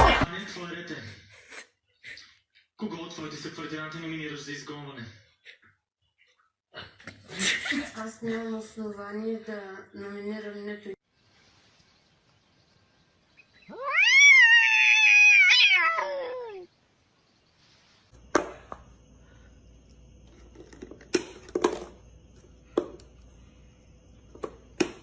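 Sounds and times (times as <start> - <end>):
faint hiss: 11.1 - 13.4, 17.1 - 18.2
cat meowing: 13.7 - 16.7.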